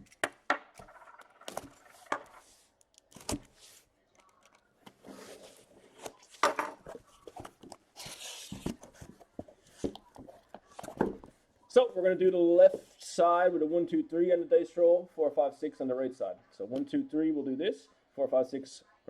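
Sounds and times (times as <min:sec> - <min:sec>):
cardboard rustling: 0:04.9 - 0:11.4.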